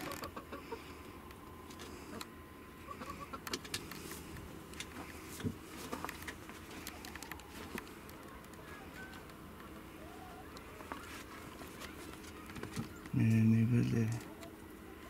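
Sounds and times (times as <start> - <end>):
soft bird cooing: 2.8 - 3.4, 6.6 - 13.2.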